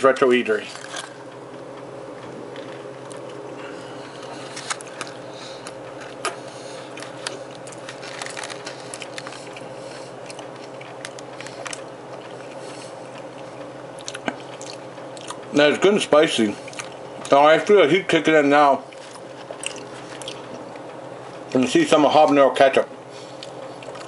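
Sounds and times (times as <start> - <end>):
steady background hum: 0.0 - 24.0
wet mouth clicks while chewing: 16.6 - 17.0, 19.5 - 20.9.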